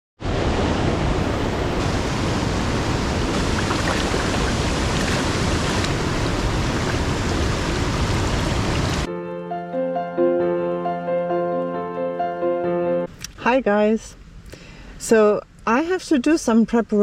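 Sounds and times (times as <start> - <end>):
loud rushing noise: 0.2 - 9.1.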